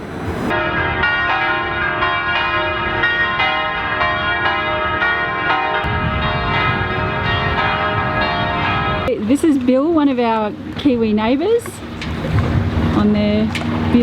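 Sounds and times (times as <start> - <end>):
church bells ringing: 0.5 - 9.6.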